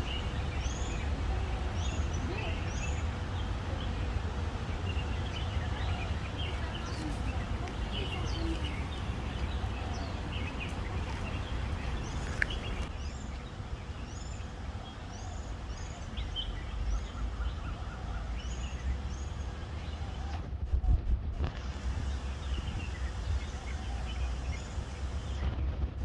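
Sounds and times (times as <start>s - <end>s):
bird chirping: 0.0s - 20.4s.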